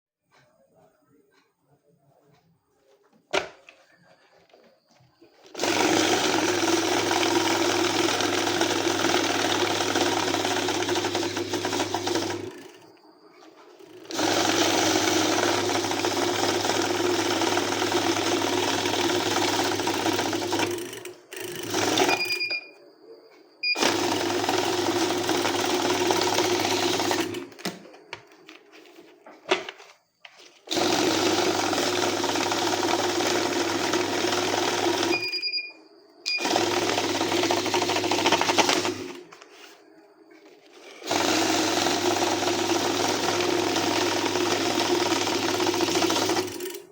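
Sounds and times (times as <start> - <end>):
banknote counting machine whirring: 5.5 - 22.6, 23.6 - 27.6, 30.6 - 35.5, 36.3 - 39.8, 40.7 - 46.9.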